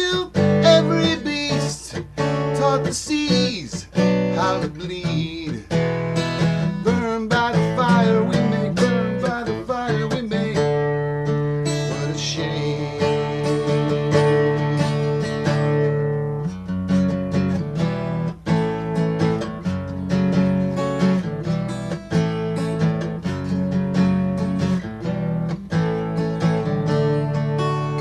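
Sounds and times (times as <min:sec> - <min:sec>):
guitar strumming chords: 0:00.0 - 0:28.0.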